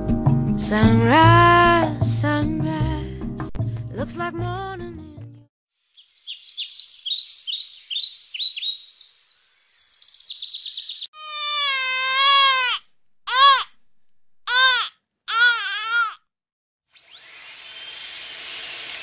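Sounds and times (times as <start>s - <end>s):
birds singing: 5.9s - 11.5s
baby crying: 11.2s - 13.7s, 14.5s - 16.2s.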